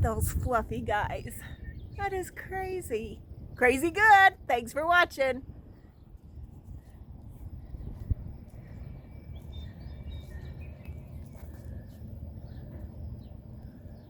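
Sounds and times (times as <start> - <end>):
wind on microphone: 0.0 - 14.0
faint bird chirps: 7.6 - 14.0.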